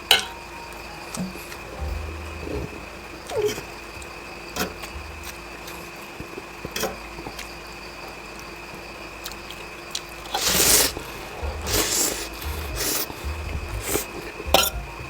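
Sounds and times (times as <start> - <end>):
background hum: 0.0 - 15.0
eating mouth noises: 10.4 - 14.8.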